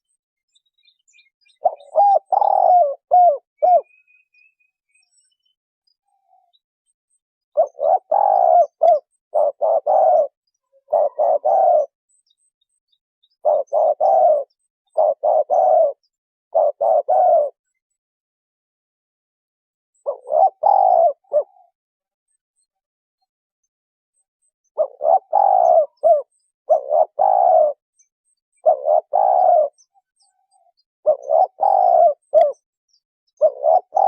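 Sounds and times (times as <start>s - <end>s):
dove cooing: 1.5s - 4.1s, 7.5s - 12.0s, 13.4s - 17.6s, 20.0s - 21.8s, 24.7s - 27.8s, 28.6s - 32.6s, 33.3s - 34.0s.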